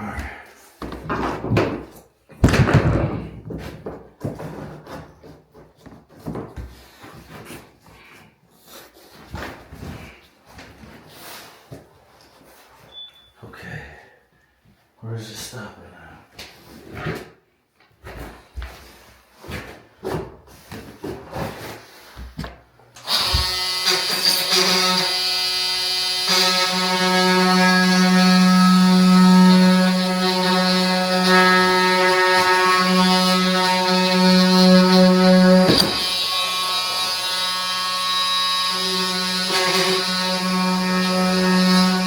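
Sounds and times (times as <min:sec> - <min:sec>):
flooring planks knocking: 0:00.8 - 0:07.4
electric power tool whining: 0:23.0 - 0:42.0.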